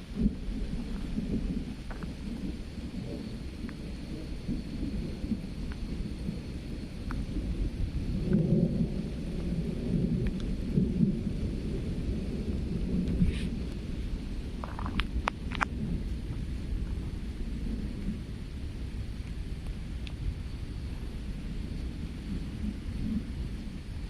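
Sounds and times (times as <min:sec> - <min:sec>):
steady rain: 0:00.0 - 0:24.0
thunder rumbling: 0:00.0 - 0:24.0.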